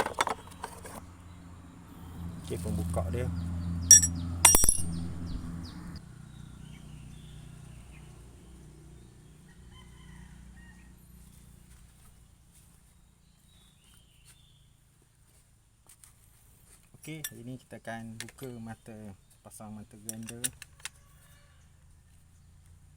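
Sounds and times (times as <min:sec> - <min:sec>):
low hum: 0:01.3 - 0:06.0
metal tools clicking: 0:03.9 - 0:05.0, 0:20.1 - 0:21.0.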